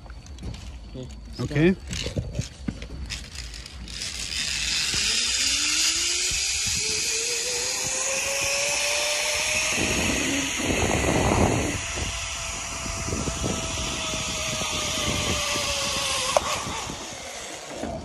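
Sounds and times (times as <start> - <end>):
zipline pulleys whining on cable: 1.4 - 18.0
wind rushing: 6.1 - 18.0.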